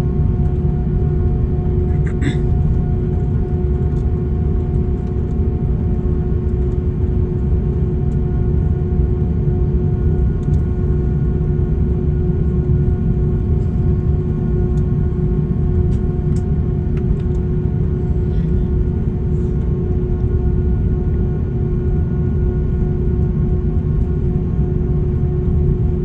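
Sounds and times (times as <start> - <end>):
steady humming tone: 0.0 - 8.5
airliner cabin rumble: 0.0 - 26.0.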